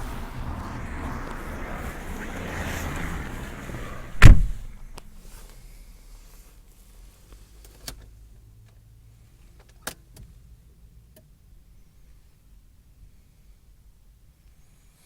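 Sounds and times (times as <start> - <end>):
diesel engine idling: 0.0 - 5.2.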